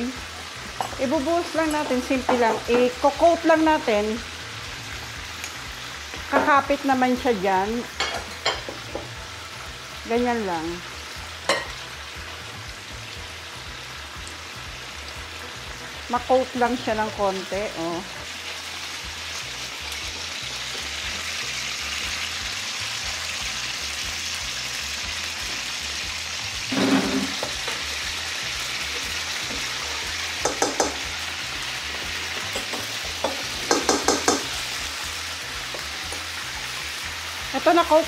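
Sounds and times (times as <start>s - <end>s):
chicken sizzling in hot oil: 0.0s - 38.0s
spoon tapping steel bowl: 30.4s - 31.1s, 32.5s - 34.5s.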